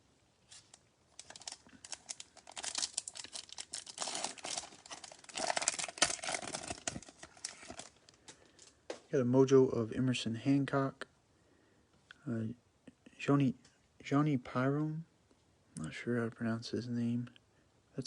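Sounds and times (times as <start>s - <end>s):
foil wrapper crackling: 0.5s - 8.7s.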